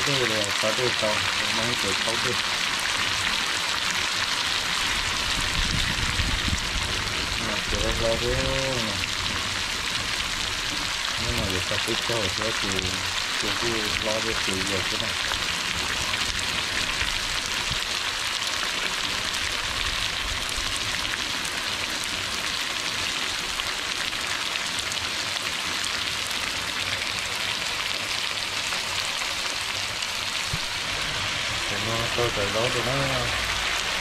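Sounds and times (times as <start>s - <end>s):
meat sizzling in a wok: 0.0s - 34.0s.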